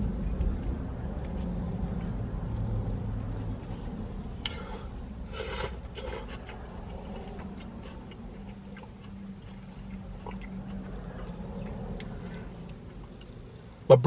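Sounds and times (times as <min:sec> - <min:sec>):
low steady hum: 0:00.0 - 0:14.0
person chewing noodles: 0:05.3 - 0:13.6.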